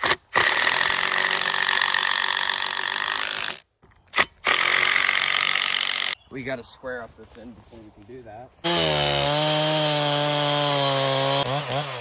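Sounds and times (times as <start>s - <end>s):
power saw cutting wood: 8.6s - 12.0s.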